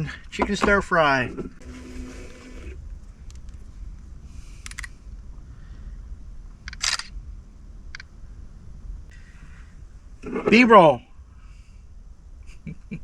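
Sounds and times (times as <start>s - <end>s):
low steady rumble: 0.0s - 13.0s
sharp clicks: 4.6s - 5.0s, 6.6s - 7.2s.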